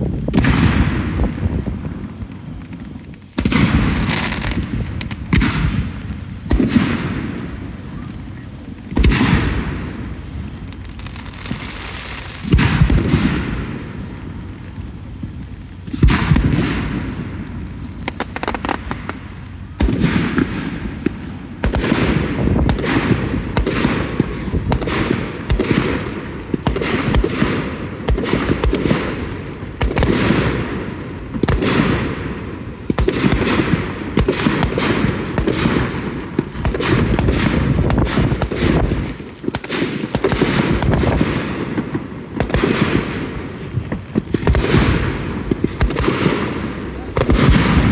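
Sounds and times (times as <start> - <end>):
fireworks booming: 0.0 - 47.9.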